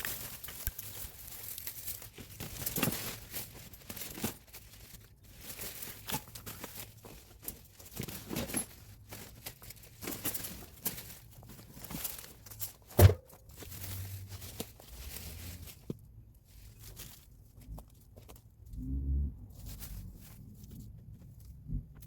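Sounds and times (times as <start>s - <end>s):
soil and vines rustling: 0.0s - 22.0s.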